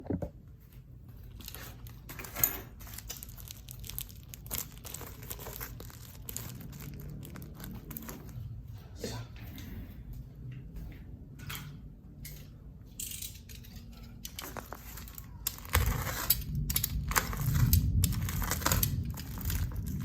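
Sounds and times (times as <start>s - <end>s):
packaging crinkling and tearing: 1.3s - 2.1s, 2.7s - 8.5s, 14.2s - 20.0s.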